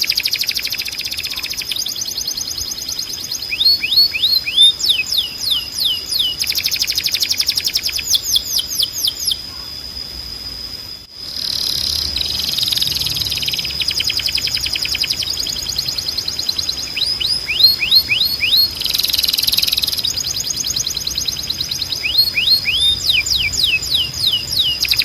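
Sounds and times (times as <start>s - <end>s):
canary singing trills: 0.0s - 10.0s, 11.2s - 25.0s.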